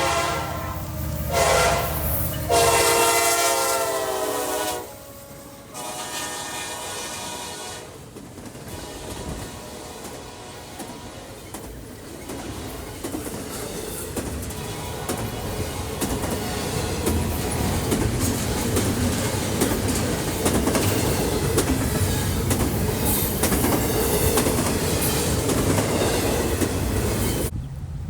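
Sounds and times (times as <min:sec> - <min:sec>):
train rumble: 0:00.0 - 0:28.0
train wheels clicking over rail joints: 0:08.0 - 0:27.5.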